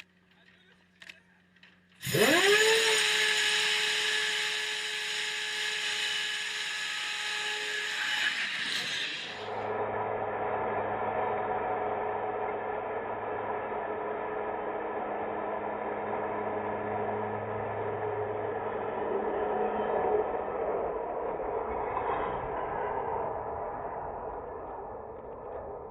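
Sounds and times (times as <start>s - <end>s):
electric drive whining: 1.6s - 25.7s
dull hum with rushing noise: 9.2s - 25.9s.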